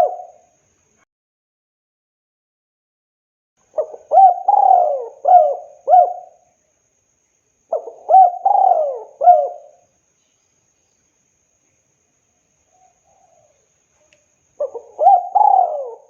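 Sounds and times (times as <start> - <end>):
dove cooing: 0.0 - 0.4, 3.8 - 6.4, 7.7 - 9.8, 14.6 - 16.0.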